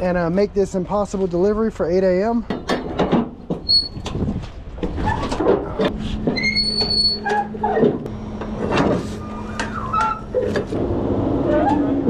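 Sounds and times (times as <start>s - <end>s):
short high squeaks: 3.6s - 4.0s, 6.3s - 7.9s, 9.1s - 10.6s
steady low hum: 7.2s - 11.5s.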